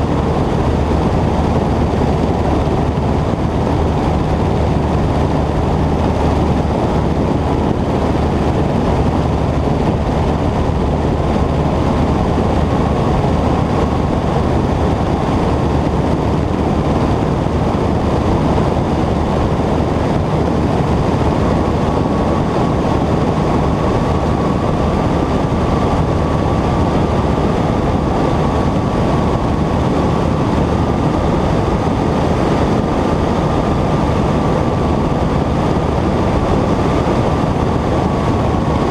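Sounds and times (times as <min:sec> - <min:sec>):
airplane engine and propeller droning: 0:00.0 - 0:38.9.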